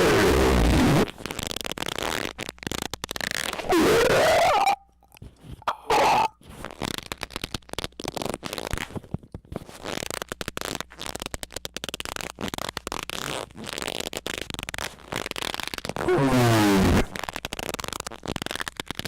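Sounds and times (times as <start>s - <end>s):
sputtering crackling noise bursts: 0.0s - 4.8s, 5.8s - 8.3s.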